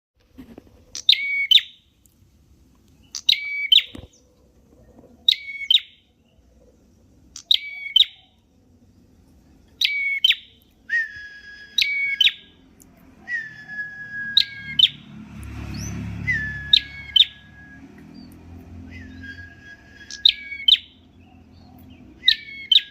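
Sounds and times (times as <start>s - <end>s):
bird singing sharp notes: 0.9s - 1.8s, 3.0s - 4.2s, 7.4s - 8.4s, 9.8s - 12.7s, 13.3s - 22.9s
bird whistling: 1.0s - 1.8s, 3.0s - 4.1s, 5.3s - 6.0s, 7.4s - 8.4s, 9.8s - 15.1s, 15.7s - 22.9s.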